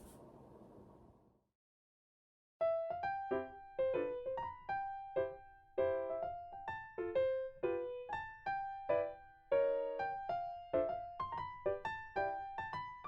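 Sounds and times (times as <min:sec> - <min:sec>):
soft piano melody: 0:02.6 - 0:13.0.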